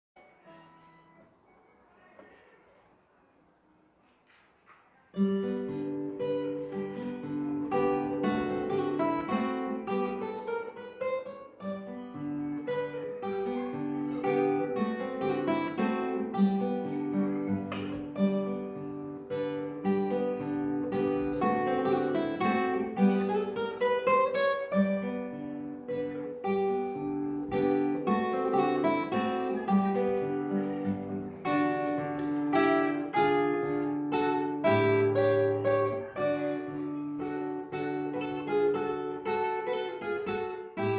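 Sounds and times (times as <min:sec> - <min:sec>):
acoustic guitar waltz: 0:00.2 - 0:40.9.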